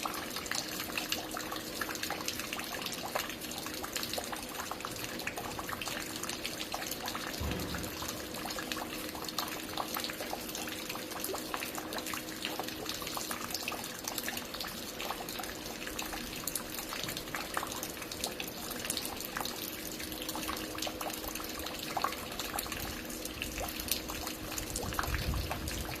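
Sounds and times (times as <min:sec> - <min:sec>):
water dripping and splashing: 0:00.0 - 0:26.0
low rumbles: 0:07.4 - 0:08.9.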